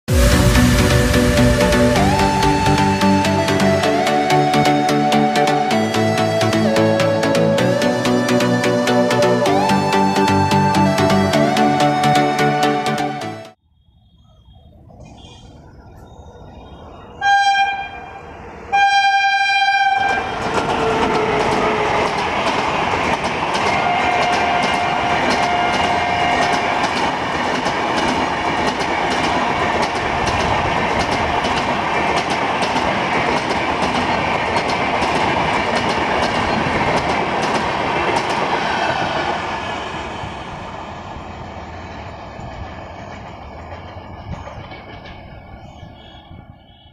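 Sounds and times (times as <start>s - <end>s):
train coaches clickety-clack: 0.1s - 13.4s, 14.7s - 46.9s
locomotive horn blasts: 17.2s - 22.0s, 23.7s - 26.6s.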